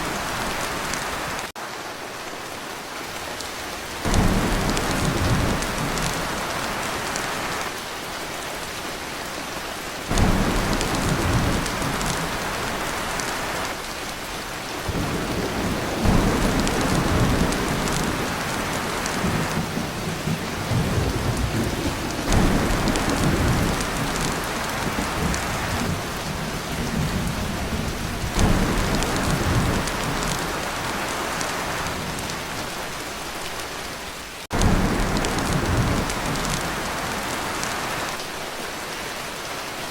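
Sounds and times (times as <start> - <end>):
heavy rain on a tin roof: 0.0 - 39.9
thunder rumbling: 4.0 - 7.6, 10.1 - 13.9, 14.8 - 32.8, 34.5 - 38.2.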